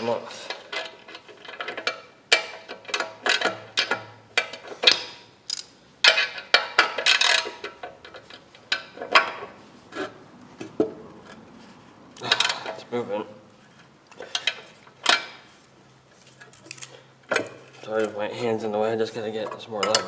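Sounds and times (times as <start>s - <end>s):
wrench clicking on metal bolt: 0.5s - 8.0s.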